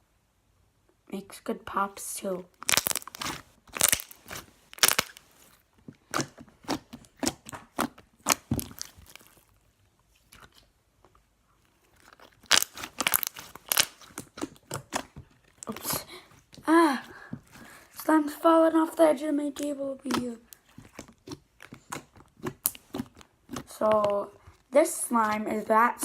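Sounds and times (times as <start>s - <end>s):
slime sticky pops and crackles: 2.6s - 5.2s, 6.1s - 9.4s, 12.4s - 15.9s, 19.6s - 24.0s.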